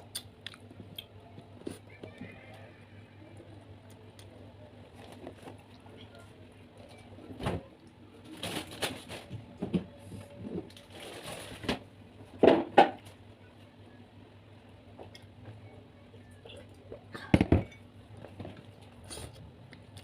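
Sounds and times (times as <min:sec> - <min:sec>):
chewing and crunching prawns: 0:00.0 - 0:01.9.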